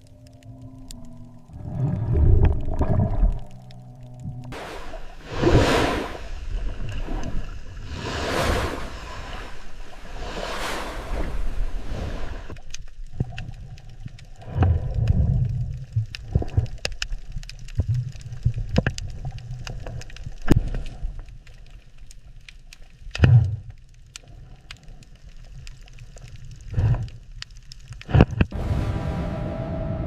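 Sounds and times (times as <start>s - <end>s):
underwater clicks and crackles: 0.0s - 8.1s, 8.7s - 28.6s
low bubbling rumble: 0.0s - 20.6s.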